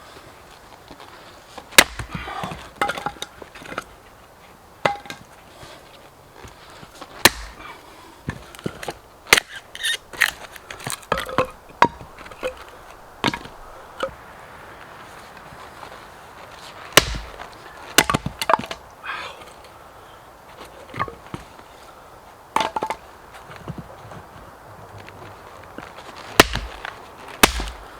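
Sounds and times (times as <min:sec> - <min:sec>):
axe chopping wood: 0:01.8 - 0:03.8, 0:04.8 - 0:05.2, 0:07.1 - 0:14.2, 0:16.9 - 0:18.8, 0:26.4 - 0:27.9.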